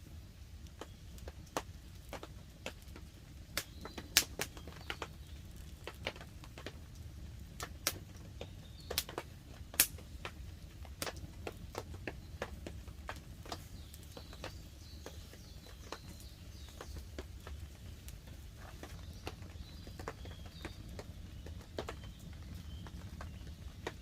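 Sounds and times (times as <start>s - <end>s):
campfire crackling and popping: 0.0s - 24.0s.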